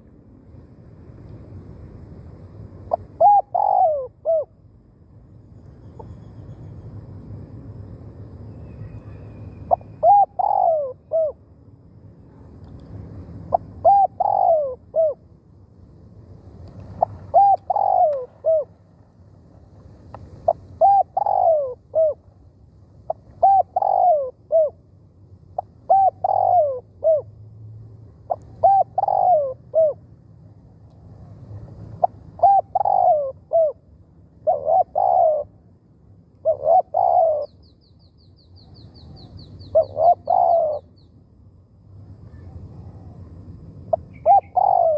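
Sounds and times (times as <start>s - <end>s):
dove cooing: 2.9s - 4.6s, 9.0s - 11.4s, 13.4s - 15.2s, 17.0s - 18.8s, 20.4s - 22.3s, 23.1s - 24.8s, 25.6s - 27.3s, 28.3s - 30.0s, 32.0s - 33.8s, 34.4s - 35.6s, 36.4s - 37.6s, 39.0s - 40.9s, 43.9s - 44.9s.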